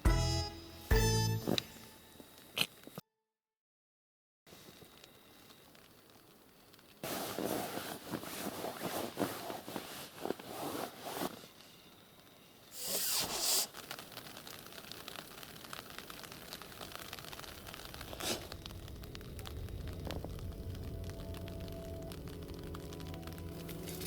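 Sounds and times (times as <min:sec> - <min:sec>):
rustling and scraping handling: 0:07.0 - 0:11.7.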